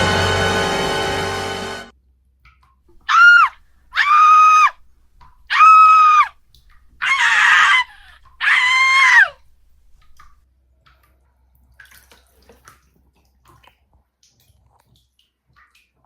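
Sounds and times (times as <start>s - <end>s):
loud high drawn-out cries: 0.0s - 1.9s, 3.1s - 4.8s, 5.5s - 6.3s, 7.0s - 9.4s.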